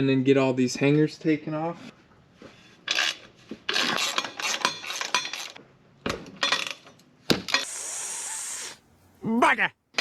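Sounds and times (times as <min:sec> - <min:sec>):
metal tools clinking and scraping: 0:02.9 - 0:05.6, 0:06.4 - 0:07.7.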